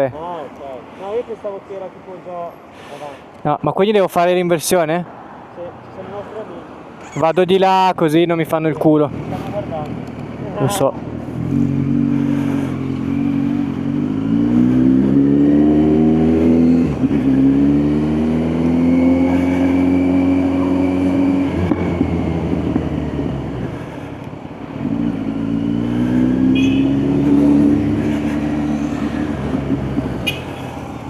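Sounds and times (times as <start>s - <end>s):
motorcycle engine revving: 11.2s - 24.0s, 24.7s - 31.0s.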